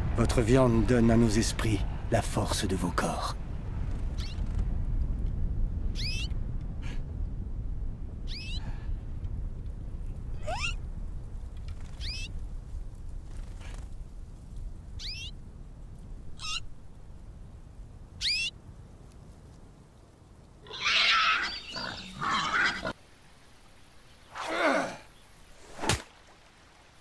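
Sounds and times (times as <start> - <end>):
low rumble: 0.0 - 18.2.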